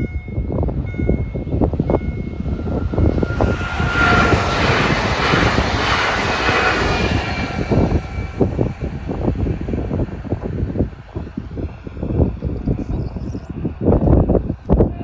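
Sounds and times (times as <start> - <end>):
train passing at speed: 0.0 - 14.9.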